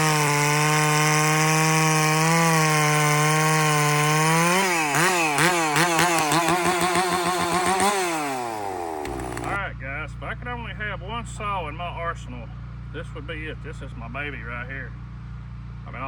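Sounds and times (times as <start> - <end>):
chainsaw cutting wood: 0.0 - 9.6
chainsaw revving in bursts: 0.0 - 9.6.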